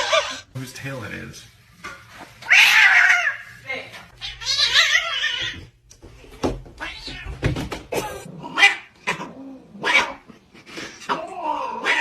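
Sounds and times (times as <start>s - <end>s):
cat meowing: 4.2s - 5.7s, 6.8s - 7.4s.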